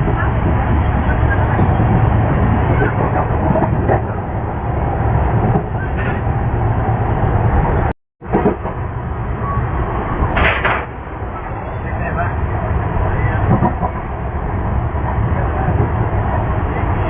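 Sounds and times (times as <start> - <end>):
train wheels on track: 0.0 - 17.0
brief clatter: 10.4 - 10.9.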